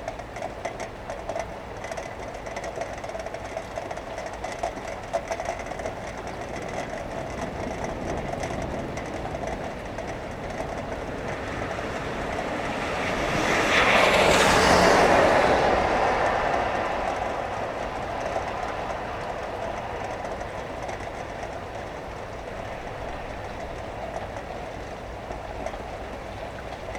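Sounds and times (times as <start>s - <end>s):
steady rain: 0.0s - 26.9s
tyres hissing on wet road: 11.0s - 24.4s.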